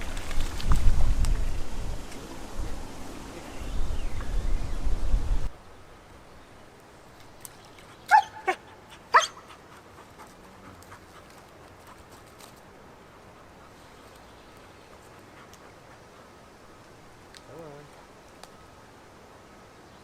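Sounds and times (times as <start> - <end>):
wind rumbling on microphone: 0.0 - 5.5
dog yipping: 8.1 - 9.5.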